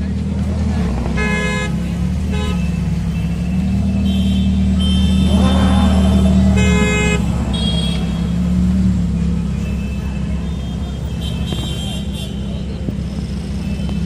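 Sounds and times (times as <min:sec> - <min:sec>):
street traffic: 0:00.0 - 0:14.0
car horns honking: 0:01.1 - 0:08.8, 0:09.6 - 0:12.6.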